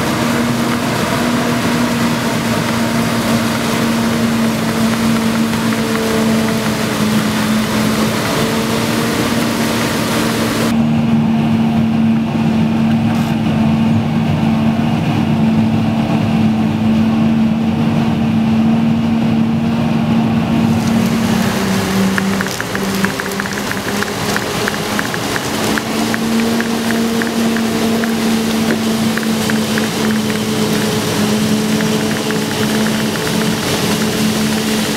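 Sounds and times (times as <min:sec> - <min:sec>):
diesel engine drone: 0:00.0 - 0:34.9.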